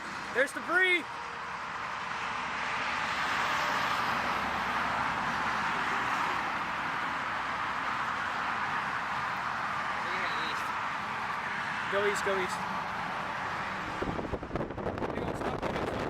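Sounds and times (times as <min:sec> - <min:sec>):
car road and wind noise: 0:00.0 - 0:16.0.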